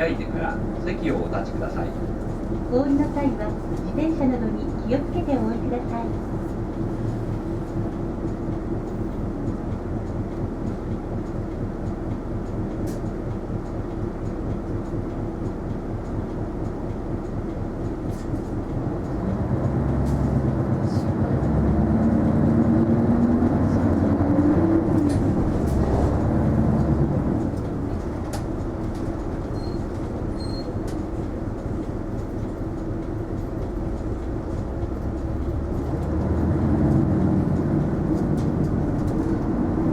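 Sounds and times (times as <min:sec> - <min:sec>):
bus diesel engine: 0:00.0 - 0:39.9.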